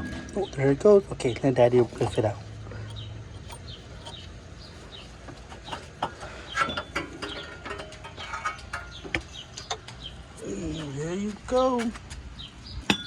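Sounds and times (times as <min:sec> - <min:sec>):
birds chirping: 0:00.0 - 0:13.0
metallic clinks and knocks: 0:01.9 - 0:04.4, 0:05.3 - 0:10.0.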